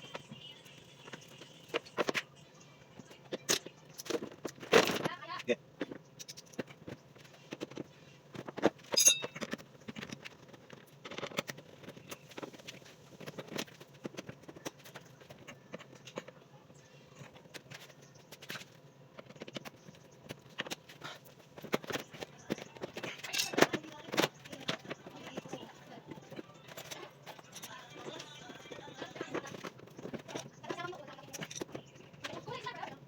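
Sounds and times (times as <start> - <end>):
hand tools clicking and knocking: 5.8 - 16.4, 17.2 - 32.8
sharp metallic clink: 9.0 - 9.4.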